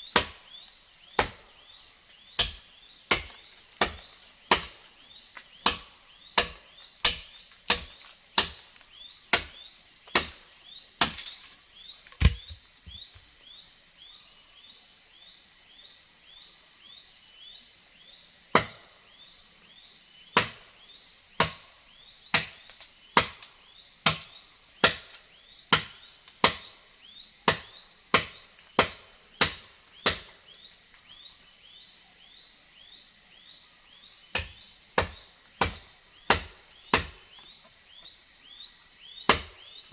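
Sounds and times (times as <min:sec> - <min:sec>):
insects chirping: 0:00.0 - 0:39.9
wood being chopped: 0:00.1 - 0:01.6, 0:02.4 - 0:10.4, 0:11.0 - 0:11.5, 0:12.1 - 0:13.2, 0:18.5 - 0:18.8, 0:20.4 - 0:20.7, 0:21.4 - 0:21.7, 0:22.3 - 0:26.8, 0:27.4 - 0:30.4, 0:34.3 - 0:37.5, 0:39.3 - 0:39.9.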